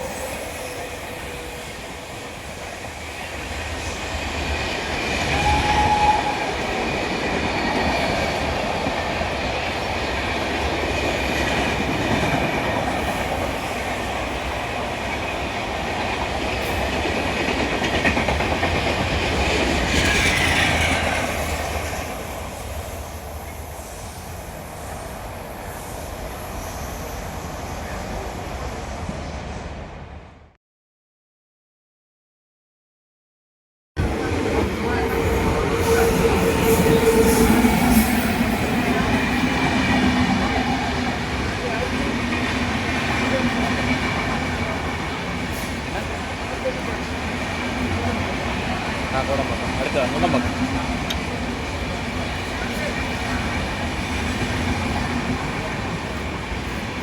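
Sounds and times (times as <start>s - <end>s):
train wheels rumbling on rails: 0.0s - 29.3s, 34.0s - 57.0s.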